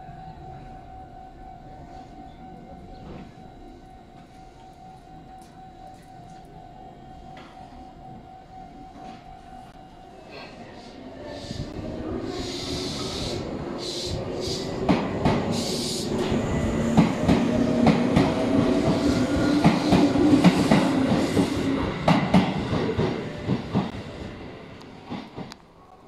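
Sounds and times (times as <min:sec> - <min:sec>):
train motor hum: 0:00.0 - 0:25.7
high hissing: 0:11.2 - 0:14.8
train wheels clacking on rails: 0:11.3 - 0:25.6.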